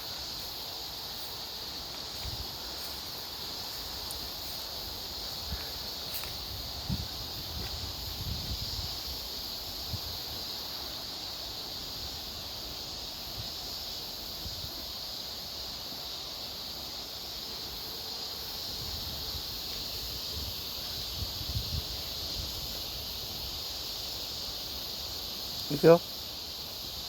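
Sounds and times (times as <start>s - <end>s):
steady high-pitched hiss: 0.0s - 27.0s
wind gusting on microphone: 5.4s - 10.5s, 18.6s - 22.8s.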